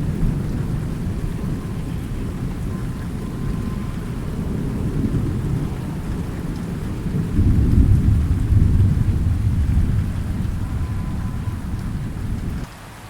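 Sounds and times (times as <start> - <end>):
low rumble of thunder: 0.0 - 12.7
steady falling rain: 0.0 - 13.0.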